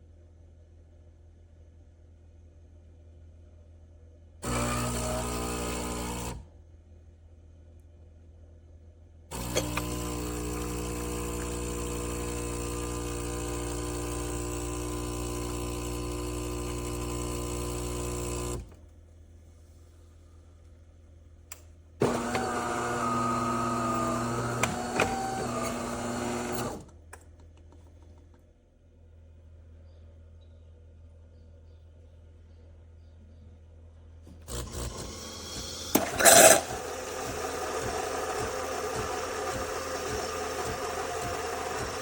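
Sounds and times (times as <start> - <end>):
espresso machine humming: 4.4 - 6.5, 9.3 - 18.8, 22.0 - 26.9, 34.3 - 42.0.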